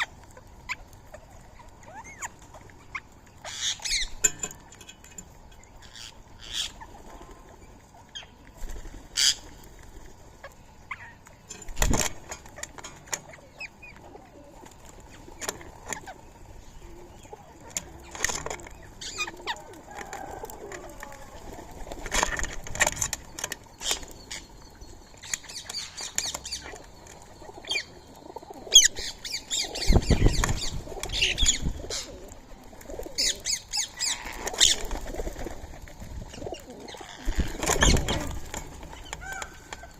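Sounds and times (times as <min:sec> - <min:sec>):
parakeets chirping: 0:00.0 - 0:04.3, 0:05.8 - 0:07.0, 0:09.1 - 0:09.4, 0:23.7 - 0:32.2
wings flapping: 0:28.7 - 0:39.9.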